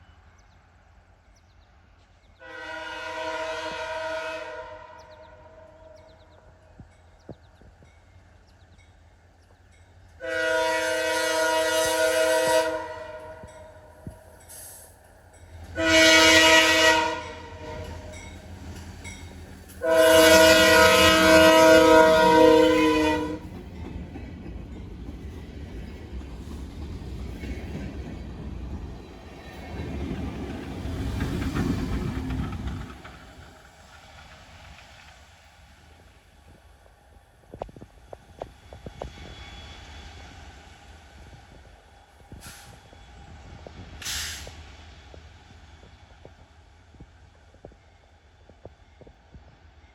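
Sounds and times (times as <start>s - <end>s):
low rumble of train: 0.0s - 49.9s
locomotive air horn blasts: 2.4s - 5.9s, 10.2s - 13.8s, 15.8s - 18.2s, 19.8s - 23.4s.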